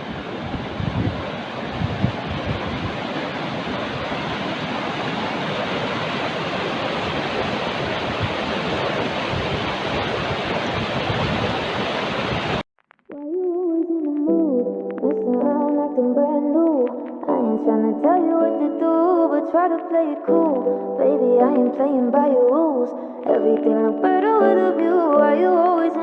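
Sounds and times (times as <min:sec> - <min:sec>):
mountain water rushing: 0:00.0 - 0:12.6
wind buffeting microphone: 0:00.0 - 0:12.6
music with sustained notes: 0:13.5 - 0:26.0.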